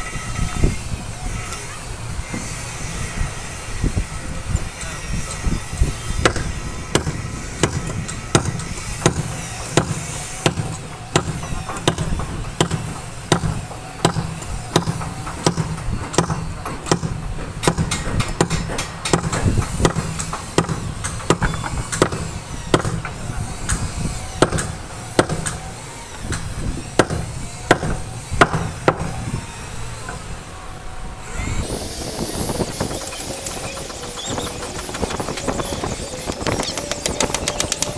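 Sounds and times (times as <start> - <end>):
hammering on heavy timber: 6.2 - 29.2.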